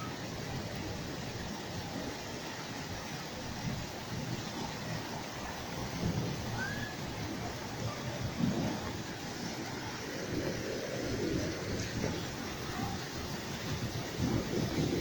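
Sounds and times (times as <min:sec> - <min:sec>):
steady rain: 0:00.0 - 0:15.0
thunder rumbling: 0:05.0 - 0:15.0.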